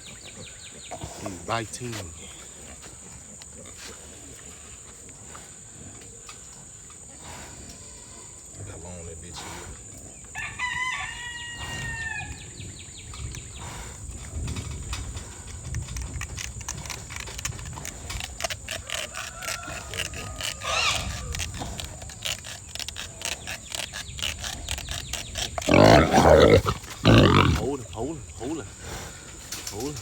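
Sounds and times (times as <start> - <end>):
boar grunting: 0.3 - 1.7, 15.1 - 30.0
rooster crowing: 10.3 - 12.4, 19.0 - 20.9
tusk cutting clicks and scrapes: 13.2 - 28.1.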